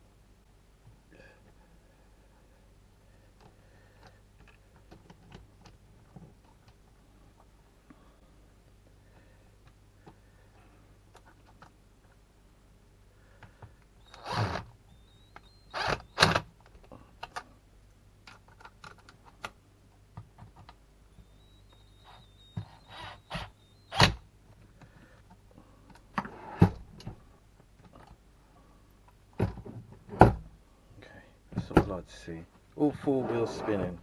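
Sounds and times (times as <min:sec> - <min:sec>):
plastic parts clicking and scraping: 0:03.4 - 0:06.8, 0:18.2 - 0:22.9.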